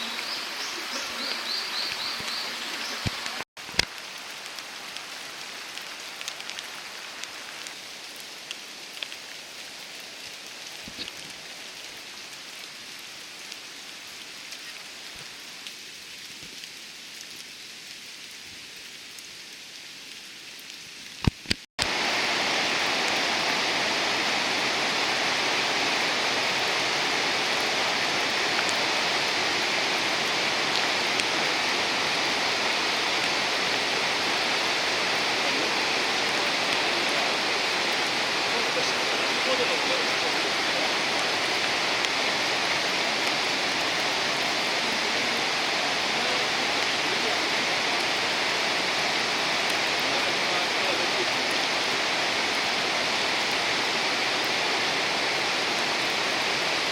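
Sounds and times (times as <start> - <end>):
waterfall rushing: 0.0 - 7.8, 21.8 - 56.9
rain falling: 0.0 - 56.9.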